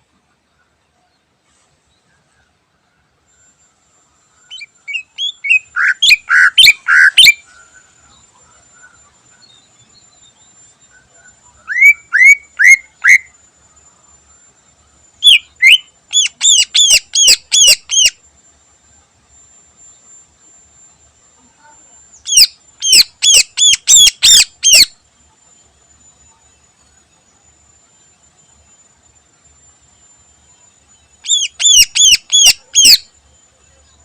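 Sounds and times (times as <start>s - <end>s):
bird whistling: 4.5s - 7.4s, 11.6s - 13.4s, 15.2s - 18.2s, 22.3s - 25.0s, 31.2s - 33.1s.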